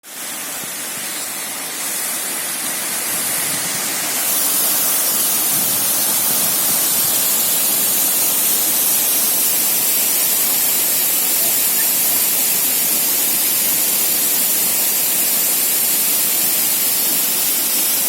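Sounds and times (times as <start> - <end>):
waterfall roaring: 0.1 - 18.0.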